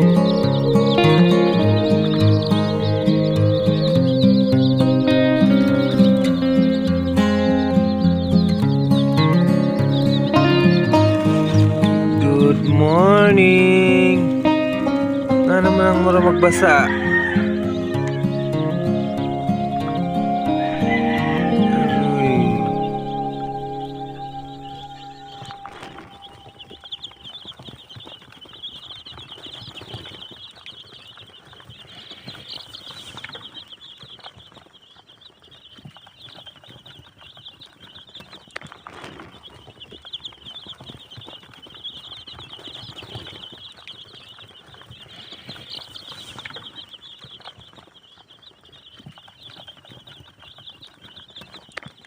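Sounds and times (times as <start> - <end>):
chicks peeping: 0.0 - 52.0
wings flapping: 25.3 - 52.0.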